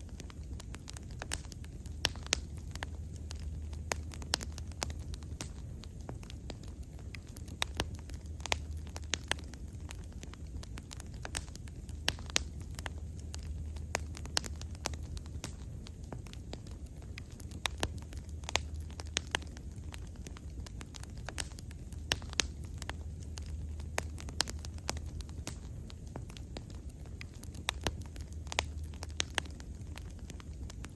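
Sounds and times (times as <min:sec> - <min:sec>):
low rumble of flames: 0:00.0 - 0:30.9
wood fire pops and crackles: 0:00.0 - 0:30.9.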